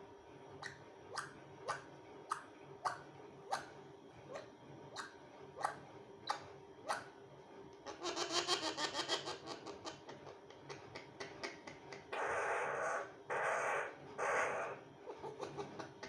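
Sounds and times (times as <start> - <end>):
parrot making sharp calls: 12.1 - 14.8.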